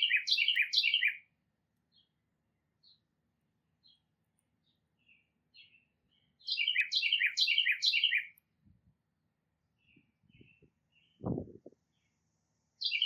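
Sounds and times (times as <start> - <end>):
bird singing downward phrases: 0.0 - 1.3, 5.0 - 8.4, 12.8 - 13.0
songbirds chirping: 0.0 - 13.0.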